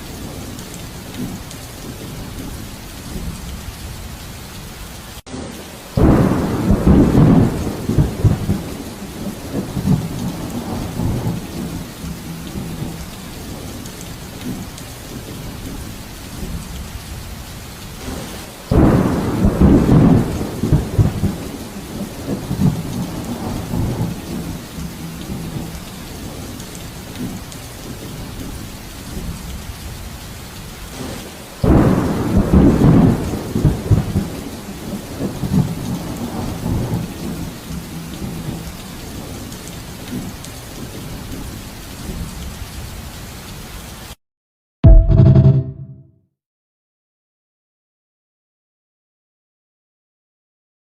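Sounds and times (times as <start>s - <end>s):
steady rain: 0.0s - 44.2s
thunder rumbles: 5.7s - 17.4s, 18.0s - 29.9s, 30.9s - 42.4s.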